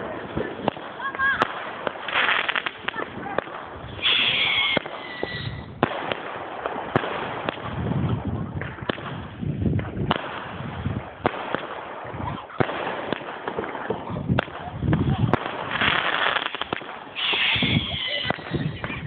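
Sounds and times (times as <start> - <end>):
fireworks bangs and crackling: 0.0 - 19.0
heavy firework reports: 0.0 - 19.0.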